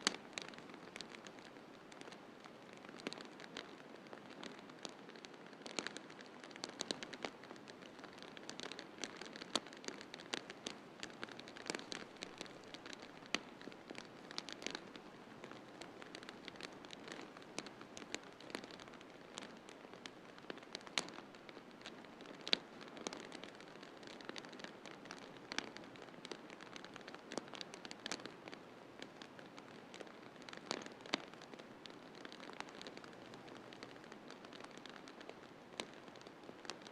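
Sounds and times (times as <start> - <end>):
wood fire crackling and popping: 0.0 - 36.9.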